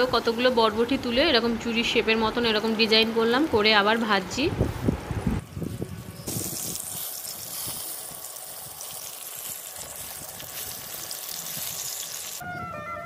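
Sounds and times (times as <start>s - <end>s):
fritters sizzling in hot oil: 5.7s - 12.4s
music: 12.4s - 13.0s.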